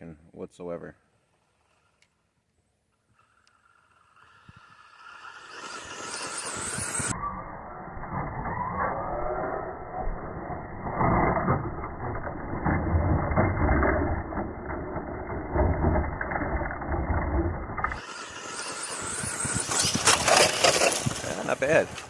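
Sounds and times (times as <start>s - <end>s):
electric rc truck motor: 1.3s - 22.0s
tires churning dirt: 3.2s - 22.0s.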